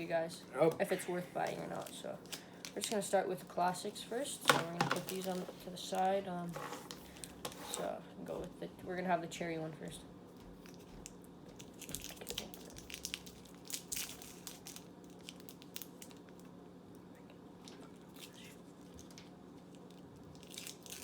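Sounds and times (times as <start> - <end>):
candy wrapper crinkling and tearing: 5.0 - 6.2, 10.6 - 16.6, 17.6 - 21.0.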